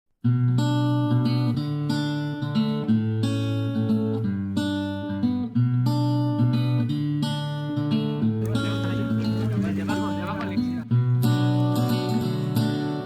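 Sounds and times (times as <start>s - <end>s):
acoustic guitar chords: 8.4s - 13.0s.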